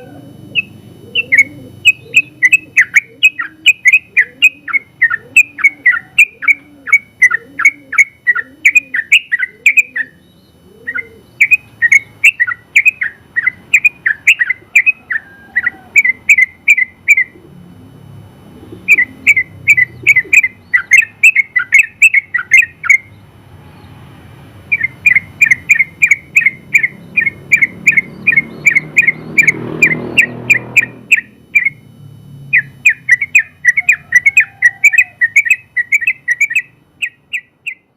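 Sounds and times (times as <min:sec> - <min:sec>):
bird singing rapid notes: 0:00.0 - 0:17.5, 0:18.6 - 0:37.9.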